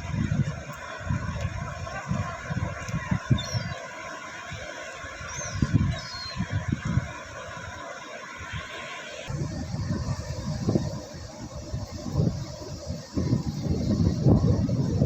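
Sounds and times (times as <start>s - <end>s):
wind buffeting microphone: 0.0s - 7.8s, 9.3s - 15.0s
sea surf: 0.0s - 15.0s
high bird chirps: 3.4s - 3.8s, 5.3s - 6.4s.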